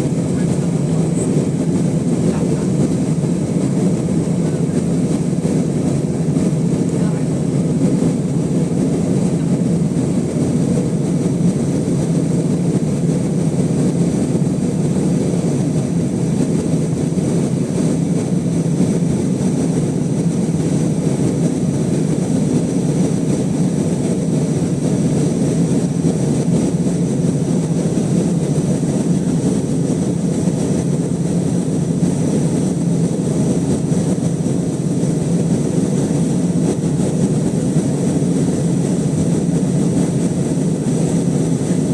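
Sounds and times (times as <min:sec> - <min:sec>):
airplane cabin engine and airflow noise: 0:00.0 - 0:41.9.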